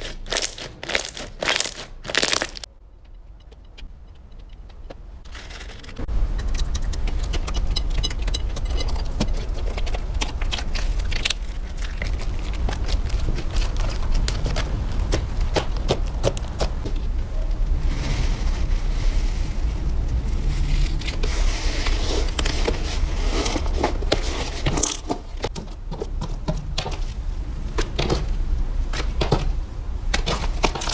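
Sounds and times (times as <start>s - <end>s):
slime crackling and popping: 0.0s - 2.7s, 9.4s - 16.7s
slime hissing squish: 0.0s - 2.7s.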